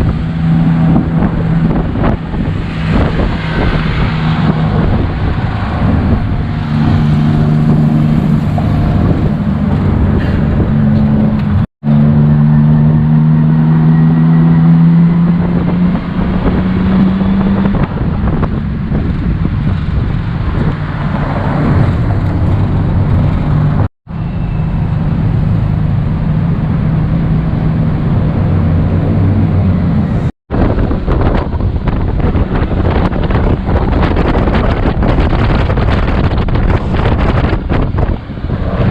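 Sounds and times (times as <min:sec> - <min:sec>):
tuk-tuk engine running: 0:00.0 - 0:16.6.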